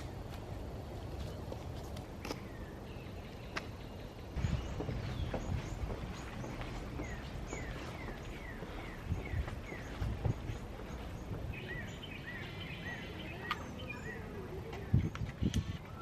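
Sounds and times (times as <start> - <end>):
outdoor background hiss: 0.0 - 16.0
birds whistling: 2.3 - 16.0
soft low thumps: 4.4 - 12.0.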